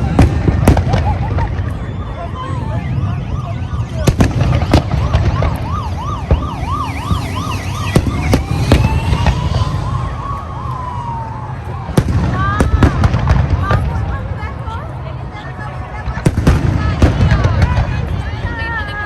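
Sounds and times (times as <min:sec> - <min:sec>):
emergency vehicle siren: 0:00.0 - 0:13.9
fireworks bangs: 0:00.0 - 0:14.3, 0:16.1 - 0:18.5
distant explosions rumble: 0:00.0 - 0:14.4, 0:16.1 - 0:18.5.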